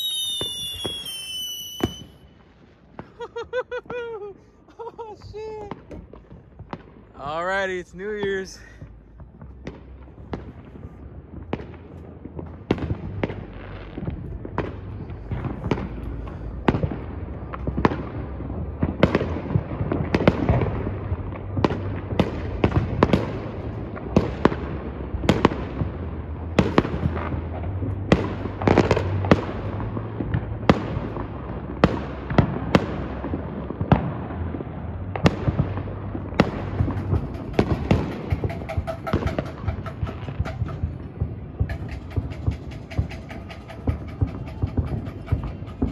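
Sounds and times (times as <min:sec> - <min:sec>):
fireworks banging: 0:00.0 - 0:45.9.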